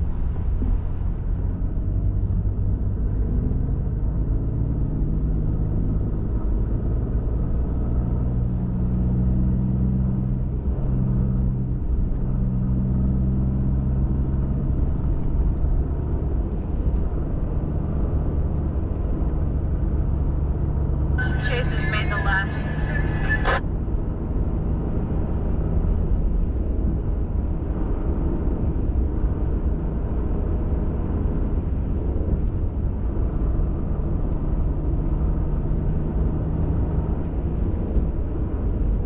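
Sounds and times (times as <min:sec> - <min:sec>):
road and tyre rumble: 0:00.0 - 0:39.0
pickup truck engine drone: 0:21.2 - 0:23.7.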